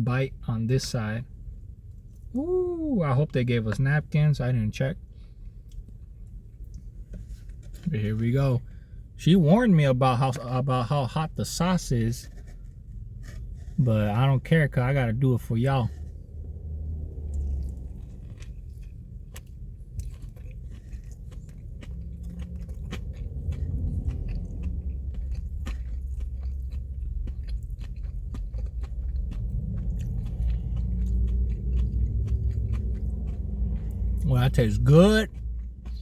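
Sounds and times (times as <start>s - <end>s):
low rumble: 12.2s - 36.0s
person chewing crunchy food: 15.9s - 36.0s.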